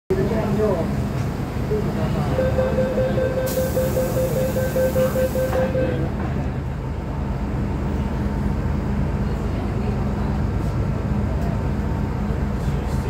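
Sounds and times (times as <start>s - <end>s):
train low rumble: 0.1s - 13.0s
rapid high warning beeps: 2.3s - 6.1s
hiss of air: 3.5s - 4.3s.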